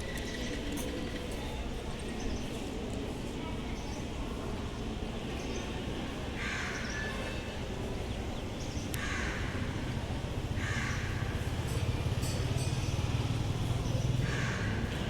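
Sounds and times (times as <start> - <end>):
crow cawing: 9.0 - 9.6, 10.6 - 11.3, 14.2 - 14.8.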